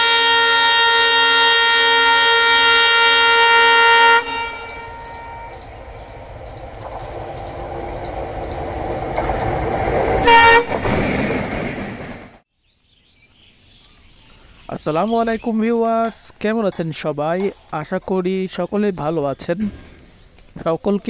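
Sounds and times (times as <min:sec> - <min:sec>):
locomotive air horn: 0:00.0 - 0:05.7, 0:10.2 - 0:11.0
train rumble passing: 0:02.2 - 0:12.4.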